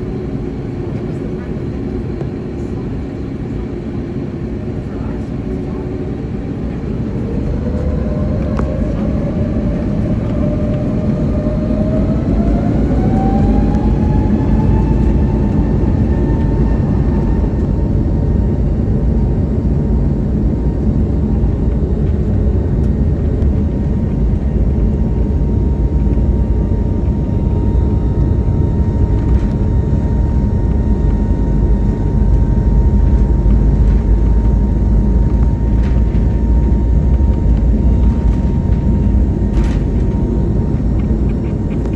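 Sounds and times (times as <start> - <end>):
rising engine whine: 0.0 - 41.9
loud engine rumble: 4.4 - 41.9
jet engines spooling up: 4.9 - 20.5.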